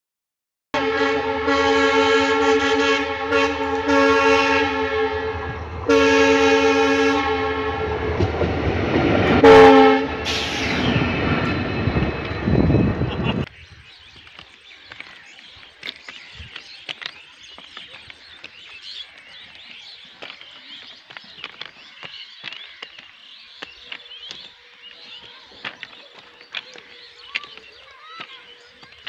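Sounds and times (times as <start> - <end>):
small birds chirping: 13.2 - 29.0.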